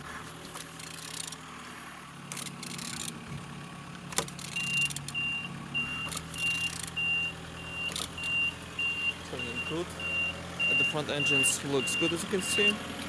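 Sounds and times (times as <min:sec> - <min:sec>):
engine turned over by hand: 0:00.0 - 0:13.0
reversing alarm beeping: 0:04.5 - 0:12.8.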